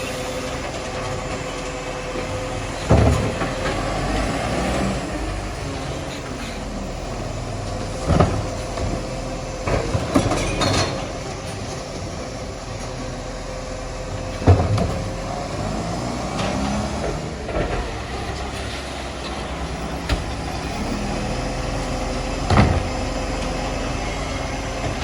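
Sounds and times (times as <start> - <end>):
garbage truck humming: 0.0 - 25.0
heavy knocks: 2.2 - 4.2, 22.4 - 23.8.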